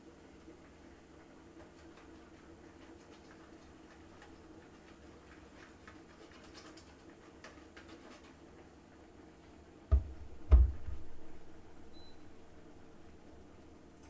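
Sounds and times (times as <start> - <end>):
dull thumps: 9.9 - 11.4.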